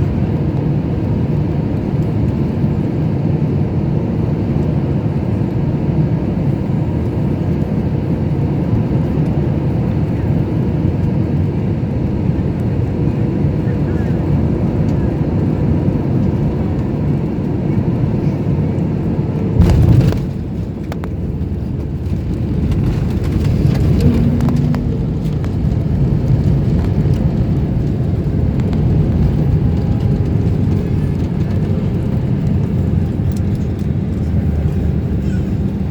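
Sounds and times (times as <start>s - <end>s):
airliner cabin rumble: 0.0s - 35.9s
loud bump: 19.6s - 20.6s, 22.9s - 26.9s.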